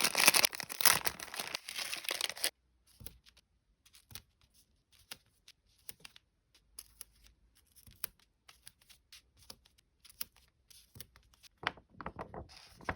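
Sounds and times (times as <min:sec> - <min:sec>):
paper rustling: 0:00.0 - 0:02.5, 0:11.6 - 0:12.9
sticker packs crinkling: 0:00.0 - 0:02.5.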